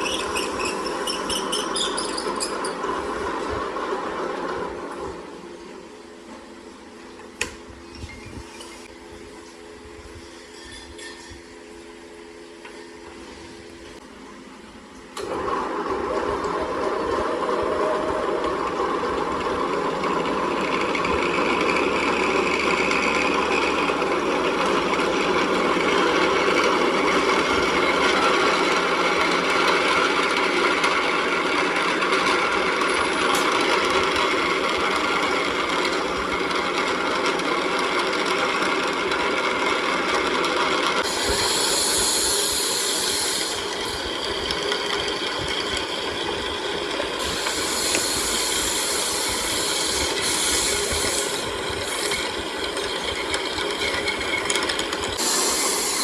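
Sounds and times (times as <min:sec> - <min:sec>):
workshop machinery running: 0:00.0 - 0:56.0
bright high hiss: 0:41.1 - 0:43.8, 0:55.2 - 0:56.0.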